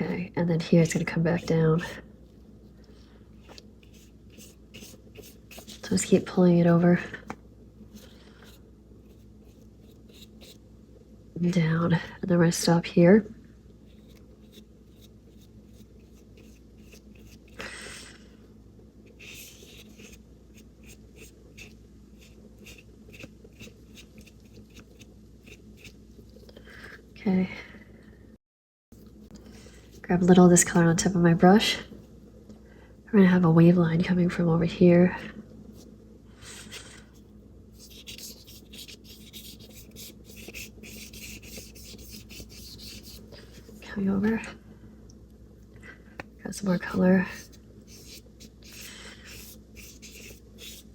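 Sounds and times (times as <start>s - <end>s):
low steady hum: 0.0s - 50.9s
paintbrush scratching on paper: 0.8s - 2.0s, 3.4s - 6.9s, 7.9s - 10.6s, 13.8s - 17.6s, 19.1s - 26.0s, 37.7s - 43.8s, 46.6s - 50.9s.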